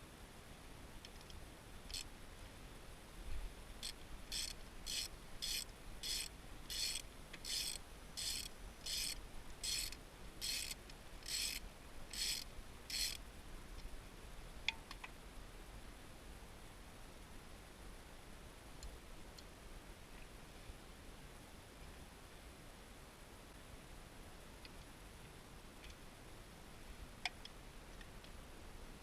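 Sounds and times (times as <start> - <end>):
ratchet wrench clicking: 1.9 - 2.1, 3.8 - 13.2.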